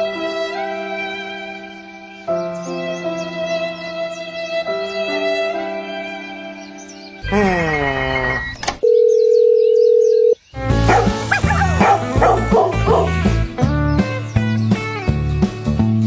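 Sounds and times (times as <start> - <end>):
bouncy music with bass line: 10.6 - 16.0.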